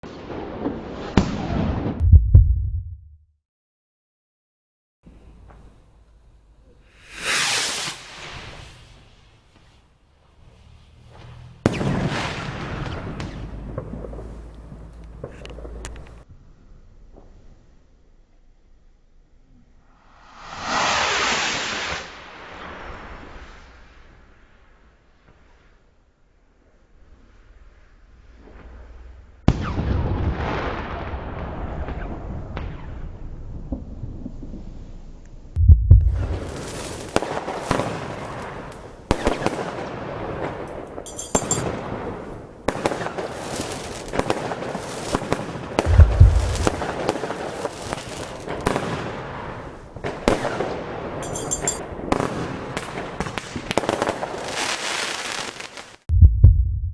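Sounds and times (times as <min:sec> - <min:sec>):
heavy firework booms: 0:00.1 - 0:03.1, 0:11.6 - 0:15.4, 0:35.6 - 0:40.6, 0:44.1 - 0:51.2
firework bursts crackling: 0:06.9 - 0:09.7, 0:36.2 - 0:39.8, 0:41.8 - 0:50.6, 0:52.3 - 0:56.1
firework rockets launching: 0:06.9 - 0:09.9, 0:10.5 - 0:16.2, 0:20.1 - 0:23.6, 0:36.2 - 0:51.2, 0:51.8 - 0:56.1.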